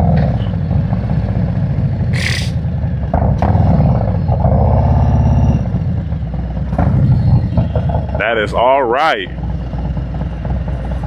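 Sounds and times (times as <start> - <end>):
motorcycle engine revving: 1.0 - 8.4
short hiss: 2.2 - 2.6.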